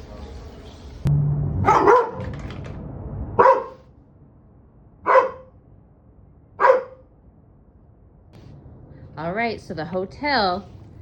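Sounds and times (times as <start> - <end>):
big dog barking: 1.6 - 2.3, 3.4 - 3.8, 5.1 - 5.5, 6.6 - 7.1.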